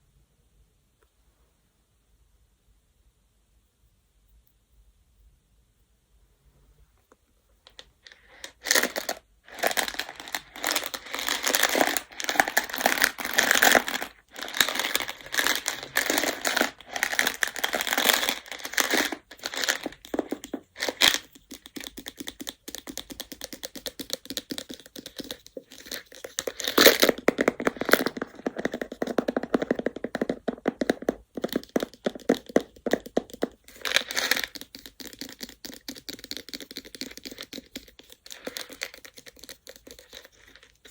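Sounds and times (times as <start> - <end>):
game stones clattering: 7.7 - 21.3, 25.0 - 35.5.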